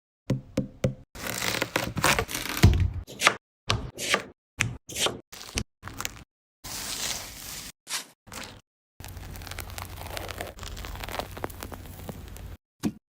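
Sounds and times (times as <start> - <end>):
knife chopping on cutting board: 3.1 - 5.2.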